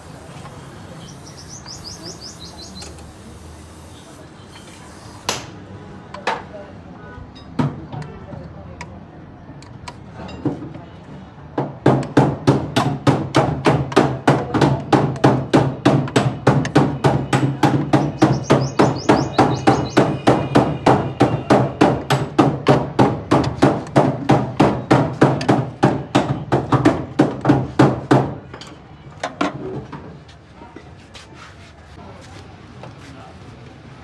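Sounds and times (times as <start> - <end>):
sharp regular knocking: 11.9 - 28.4.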